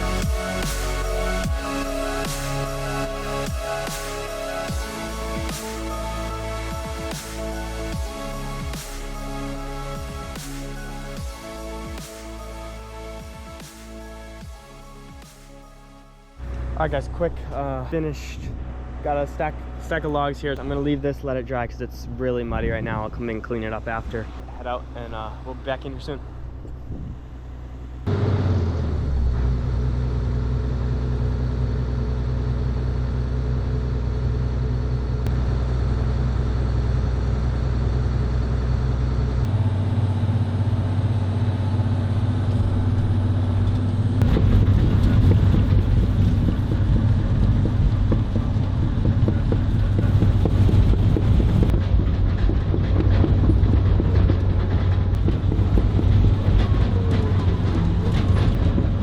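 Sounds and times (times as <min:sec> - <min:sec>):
excavator diesel engine humming: 0:00.0 - 0:14.4, 0:16.4 - 0:59.0
fast clanking rattle of tracks: 0:42.7 - 0:59.0.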